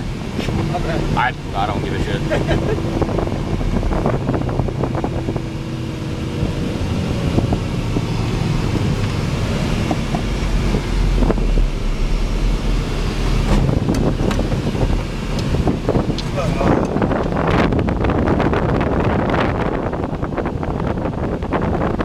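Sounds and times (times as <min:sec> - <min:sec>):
vehicle engine droning: 0:00.0 - 0:22.0
knocks and rattles: 0:07.9 - 0:17.6.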